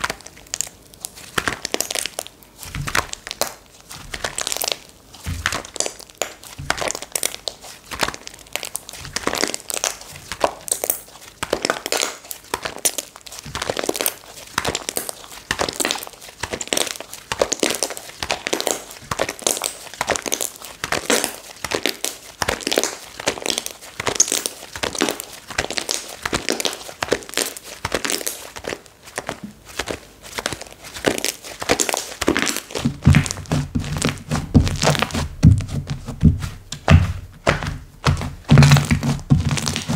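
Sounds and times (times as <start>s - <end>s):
hands squishing slime: 0.0s - 39.9s.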